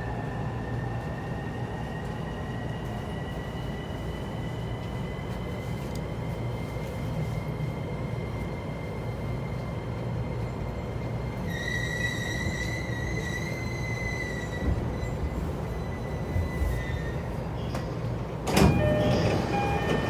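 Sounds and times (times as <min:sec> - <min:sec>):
electric train rumble and whine: 0:00.0 - 0:20.0
train brakes squealing: 0:11.5 - 0:18.0, 0:18.6 - 0:20.0.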